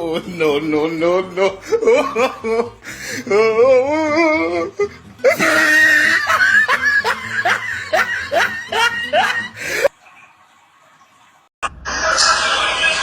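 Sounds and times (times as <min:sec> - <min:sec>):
person laughing hard: 0:00.0 - 0:09.9.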